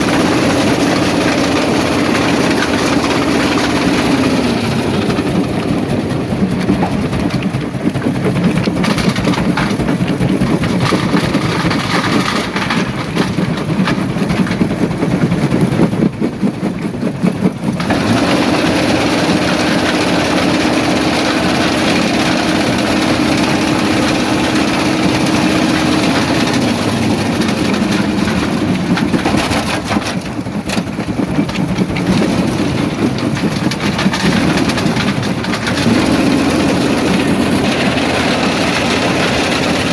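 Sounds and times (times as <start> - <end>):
heavy engine drone: 0.0 - 9.4, 17.8 - 39.9
rock clattering in crusher: 0.0 - 39.9.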